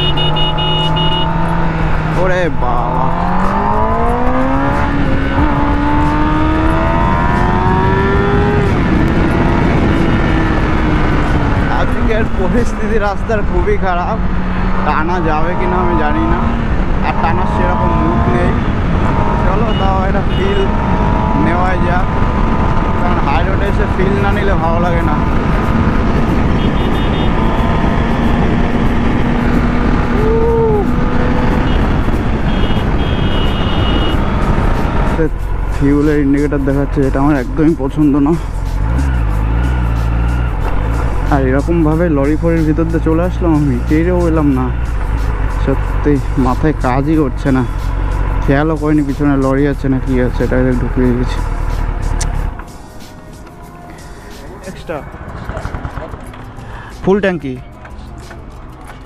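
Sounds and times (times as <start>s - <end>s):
motorcycle engine accelerating: 0.0s - 52.7s, 54.9s - 56.6s
rising and falling tone: 2.8s - 11.6s
wind rumble on microphone: 20.2s - 35.4s.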